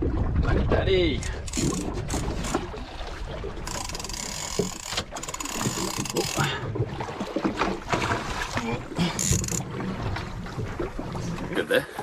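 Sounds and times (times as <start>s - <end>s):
water: 0.0s - 12.0s
wind: 0.0s - 12.0s
fishing reel ratchet clicking: 1.2s - 2.6s, 3.7s - 6.5s, 9.2s - 9.6s.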